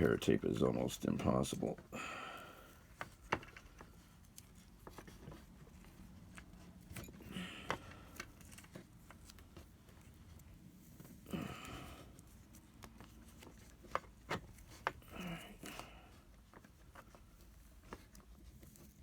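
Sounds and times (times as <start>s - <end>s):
scratchy rustle of hands: 2.7s - 7.3s, 8.0s - 19.0s.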